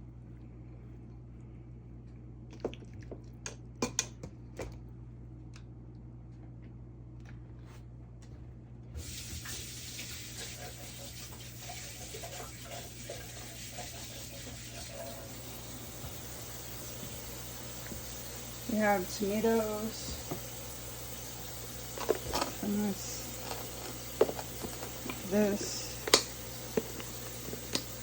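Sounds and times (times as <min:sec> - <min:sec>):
tap water running into sink: 0:09.0 - 0:28.0.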